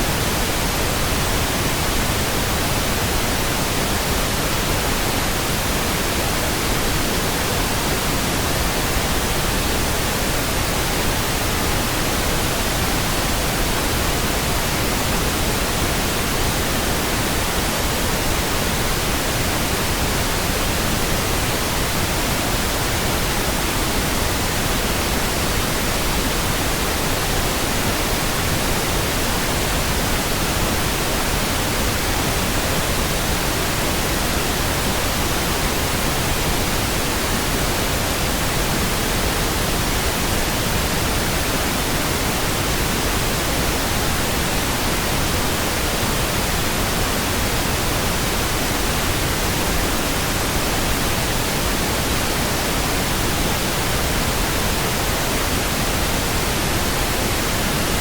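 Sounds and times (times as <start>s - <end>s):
pink noise hiss: 0.0s - 58.0s.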